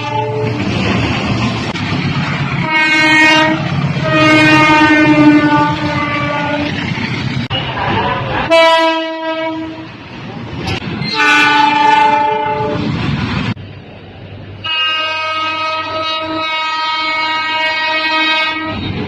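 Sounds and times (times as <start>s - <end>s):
locomotive horn blasts: 0.0s - 0.6s, 2.6s - 6.7s, 8.5s - 9.9s, 11.0s - 12.9s, 14.6s - 19.0s
train running noise: 0.0s - 19.0s.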